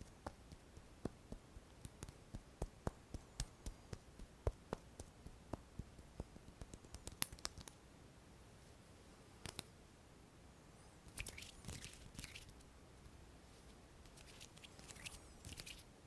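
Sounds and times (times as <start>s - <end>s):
light hand taps and clicks: 0.0s - 7.8s, 9.4s - 9.7s.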